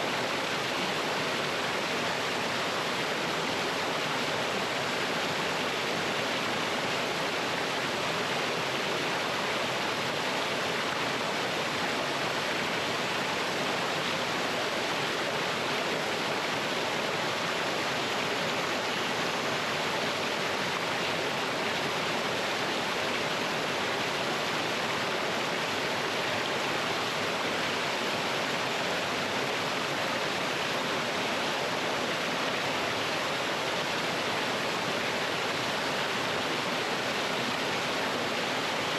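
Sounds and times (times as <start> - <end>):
stream water rushing over rocks: 0.0 - 38.9.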